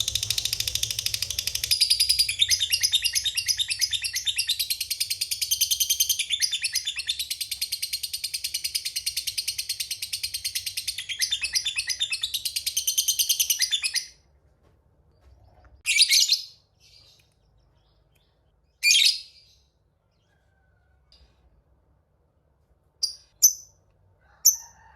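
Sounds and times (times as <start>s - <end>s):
lovebird chattering trill: 0.0s - 7.3s.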